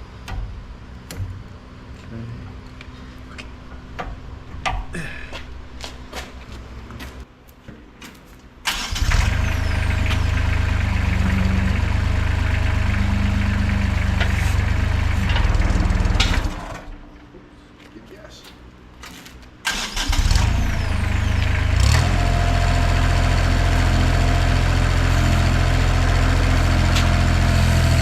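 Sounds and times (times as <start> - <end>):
skid steer engine running: 8.7 - 17.2, 19.7 - 28.0.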